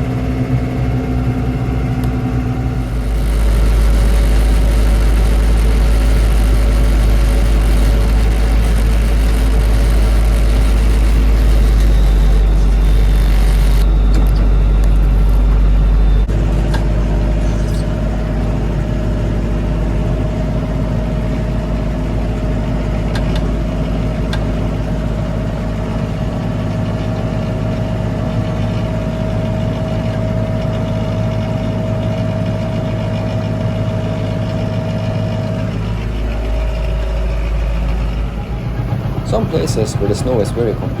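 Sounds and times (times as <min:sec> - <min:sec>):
steady high whine: 0:00.0 - 0:41.0
tractor diesel engine running: 0:00.0 - 0:41.0.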